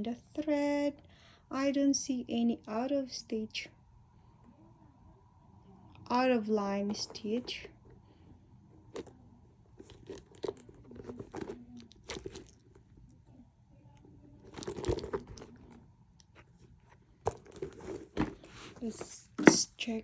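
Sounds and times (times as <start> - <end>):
wallet wrapping crinkling: 9.8 - 12.8, 14.5 - 16.6, 17.3 - 19.0.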